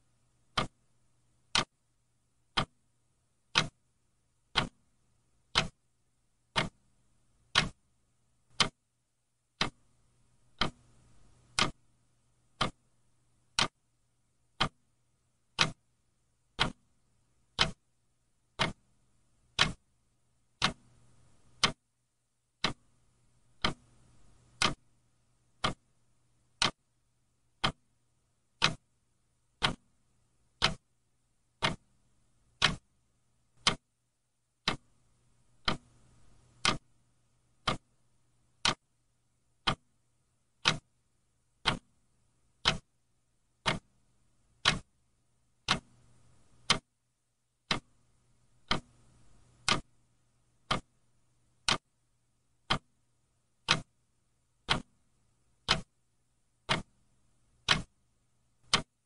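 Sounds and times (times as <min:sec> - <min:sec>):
faint low hum: 0:00.0 - 0:59.0
clock ticking: 0:00.4 - 0:00.8, 0:01.4 - 0:01.7, 0:02.5 - 0:02.8, 0:03.5 - 0:03.8, 0:04.5 - 0:04.8, 0:05.5 - 0:05.8, 0:06.5 - 0:06.8, 0:07.5 - 0:07.8, 0:08.5 - 0:08.8, 0:09.5 - 0:11.9, 0:12.5 - 0:13.8, 0:14.5 - 0:15.8, 0:16.5 - 0:17.9, 0:18.5 - 0:18.9, 0:19.5 - 0:19.8, 0:20.6 - 0:21.8, 0:22.6 - 0:24.9, 0:25.5 - 0:25.9, 0:26.5 - 0:26.9, 0:27.5 - 0:29.0, 0:29.6 - 0:30.9, 0:31.5 - 0:32.9, 0:33.6 - 0:33.9, 0:34.6 - 0:35.0, 0:35.6 - 0:37.0, 0:37.6 - 0:38.0, 0:38.6 - 0:38.9, 0:39.6 - 0:39.9, 0:40.6 - 0:41.0, 0:41.6 - 0:43.0, 0:43.6 - 0:44.0, 0:44.6 - 0:44.9, 0:45.6 - 0:46.9, 0:47.6 - 0:48.0, 0:48.6 - 0:50.0, 0:50.6 - 0:51.0, 0:51.6 - 0:51.9, 0:52.6 - 0:53.0, 0:53.6 - 0:54.0, 0:54.6 - 0:55.0, 0:55.6 - 0:56.0, 0:56.6 - 0:58.0, 0:58.6 - 0:59.0.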